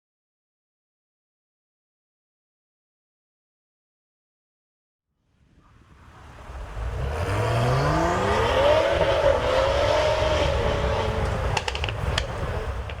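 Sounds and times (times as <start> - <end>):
car engine accelerating: 6.2 - 13.0
sharp exhaust pops: 10.3 - 13.0.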